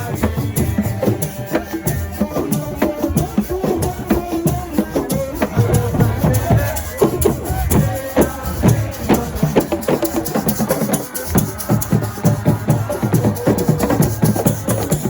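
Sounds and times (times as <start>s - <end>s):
hand drums fast rhythm: 0.0s - 15.0s.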